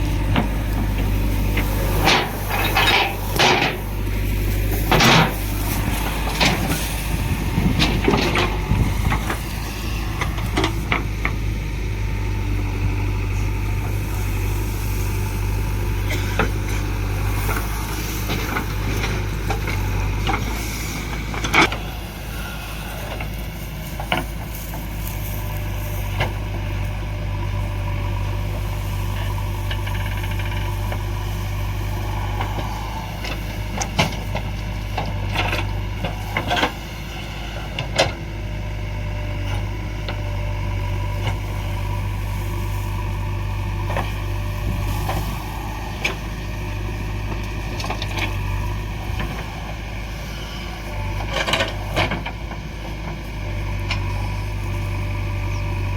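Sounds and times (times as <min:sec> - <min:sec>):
heavy diesel engines running: 0:00.0 - 0:55.9.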